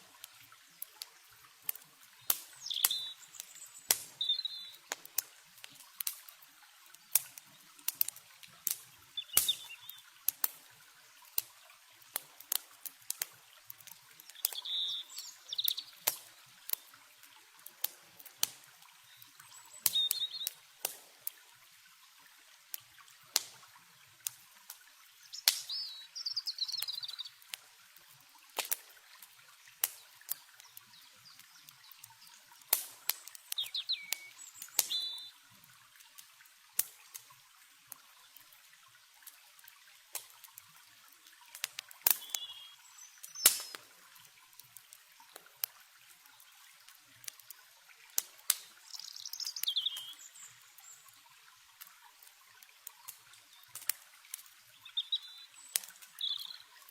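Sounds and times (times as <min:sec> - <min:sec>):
campfire wood crackling and popping: 0:00.0 - 0:56.9
river water flowing: 0:00.0 - 0:56.9
bird chirps: 0:02.6 - 0:04.8, 0:09.2 - 0:10.0, 0:14.4 - 0:16.0, 0:19.1 - 0:20.5, 0:25.3 - 0:27.3, 0:33.6 - 0:35.4, 0:42.2 - 0:43.8, 0:48.8 - 0:51.0, 0:54.8 - 0:56.7.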